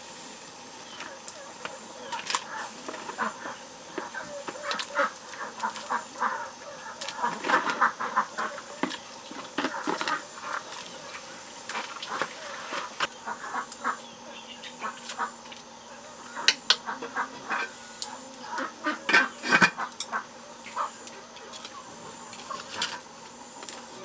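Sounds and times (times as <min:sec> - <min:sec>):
poultry clucking: 0:00.9 - 0:23.1.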